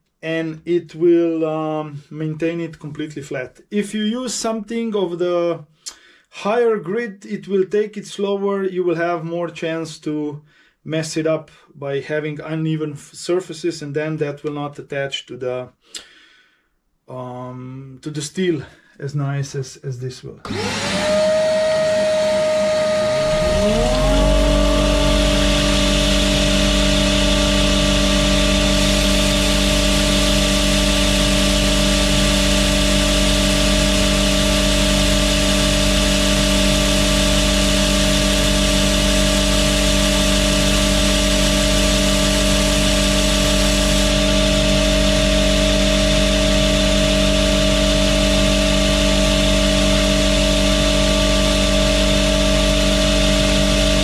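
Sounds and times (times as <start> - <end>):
belt grinder motor: 20.5 - 54.0
motor running: 20.5 - 54.0.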